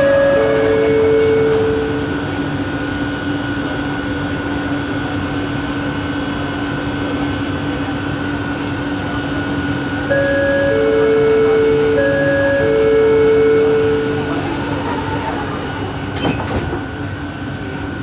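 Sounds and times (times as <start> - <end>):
high tone: 0.0 - 3.2, 10.0 - 15.3
train motor two-tone whine: 0.0 - 5.4, 7.8 - 18.0
train rolling noise: 0.0 - 18.0.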